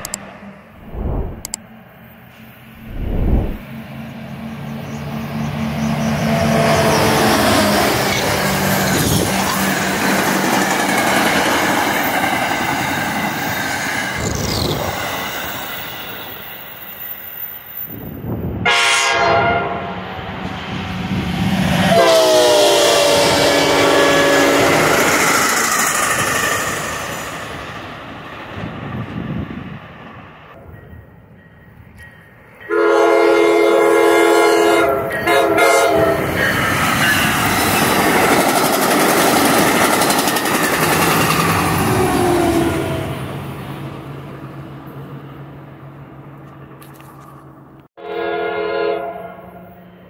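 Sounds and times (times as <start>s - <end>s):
train horn blasts: 18.6s - 20.0s, 21.8s - 25.0s, 32.7s - 36.2s, 48.0s - 49.9s
train wheels clattering on rails: 36.3s - 42.0s.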